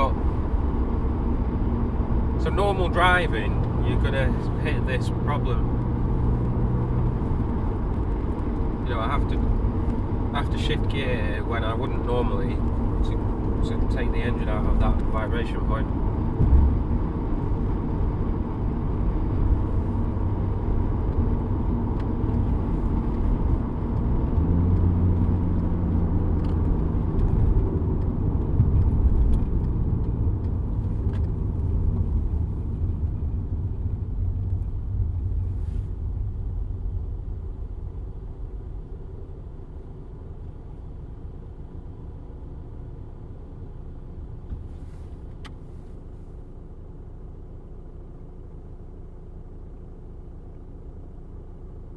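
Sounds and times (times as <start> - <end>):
car cabin running noise: 0.0 - 51.9.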